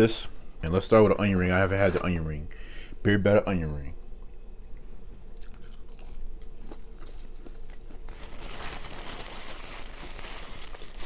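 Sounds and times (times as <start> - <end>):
chewing crisp onion ring: 5.2 - 8.4.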